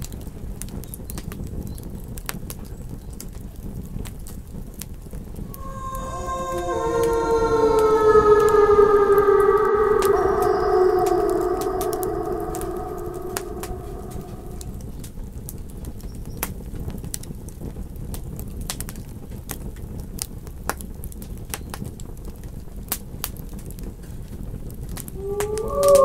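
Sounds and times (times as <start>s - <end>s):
wolf howling: 5.5s - 14.9s, 25.1s - 26.0s.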